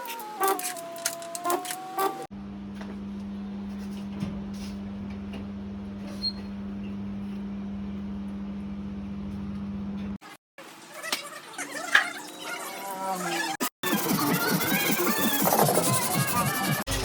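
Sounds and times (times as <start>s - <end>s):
electric motor hum: 0.0s - 2.6s.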